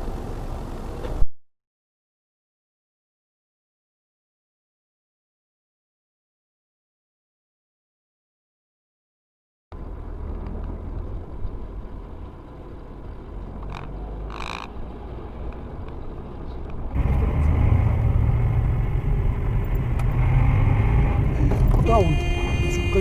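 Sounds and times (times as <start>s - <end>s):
vehicle engine and road rumble: 0.0s - 1.3s, 9.7s - 23.0s
brief high-pitched tone: 21.4s - 23.0s.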